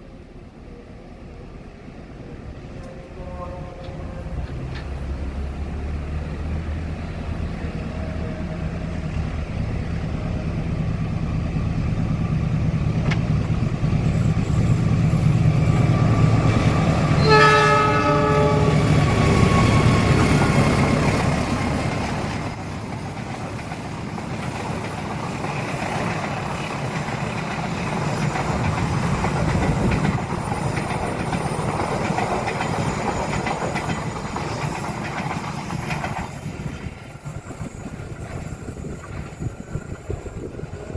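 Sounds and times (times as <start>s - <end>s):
diesel locomotive engine: 0.0s - 40.9s
train horn blast: 2.8s - 5.0s, 17.0s - 20.2s
wheels clattering over rail joints: 12.8s - 40.9s.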